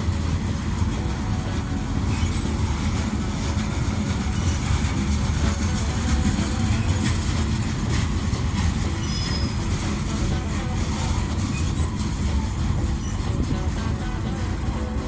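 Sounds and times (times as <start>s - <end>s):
train wheels rumbling on rail: 0.0s - 15.0s
faint high squeal: 9.0s - 9.6s.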